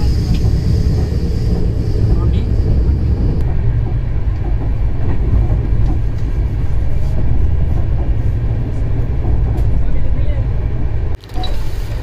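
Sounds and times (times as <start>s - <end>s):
train rumble inside coach: 0.0s - 12.0s.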